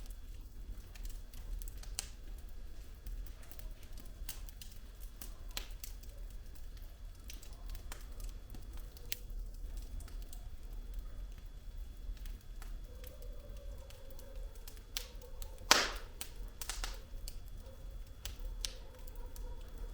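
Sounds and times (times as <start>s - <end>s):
burning logs popping: 0.0s - 19.8s
low rumble of flames: 0.0s - 19.9s.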